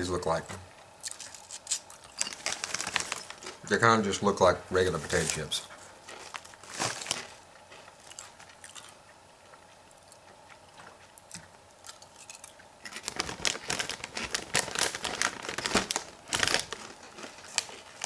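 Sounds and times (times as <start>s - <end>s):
potato chips crunching: 1.0s - 3.7s, 6.1s - 9.0s, 11.2s - 18.0s.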